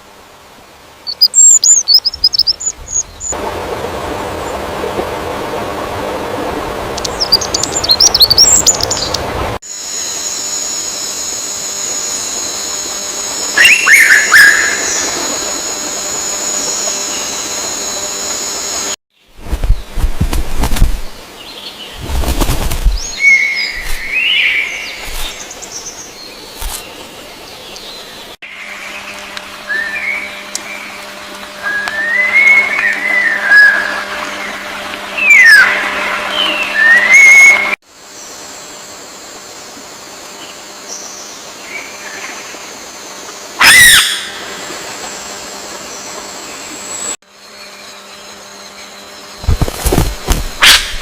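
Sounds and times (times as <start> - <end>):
birds chirping: 1.0 - 3.4, 6.9 - 9.5, 12.8 - 20.0
steady high whine: 9.5 - 21.4, 28.4 - 43.6.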